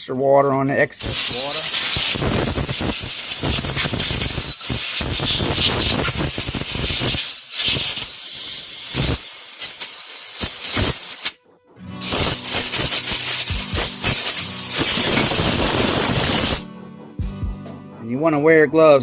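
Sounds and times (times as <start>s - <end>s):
compressed air blowgun hissing: 1.0s - 11.4s, 12.0s - 16.7s.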